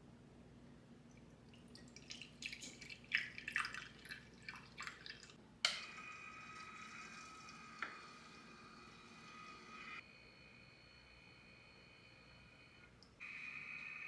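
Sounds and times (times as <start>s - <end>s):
water dripping and splashing: 1.0s - 5.4s
tap running: 5.6s - 10.0s.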